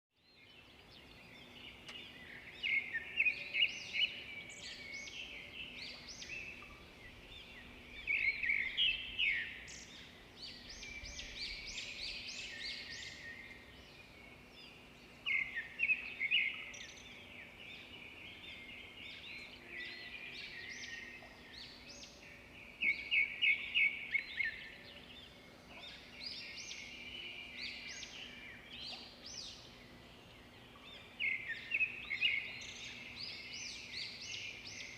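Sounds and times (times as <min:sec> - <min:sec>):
birds chirping and singing: 0:00.3 - 0:34.9.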